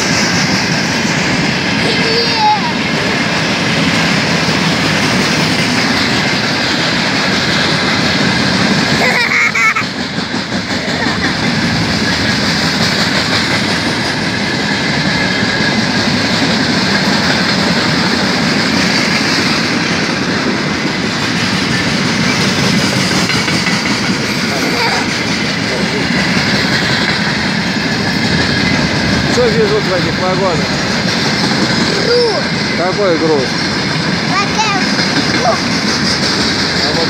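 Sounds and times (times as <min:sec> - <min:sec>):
freight train wheels on rails: 0:00.0 - 0:37.0.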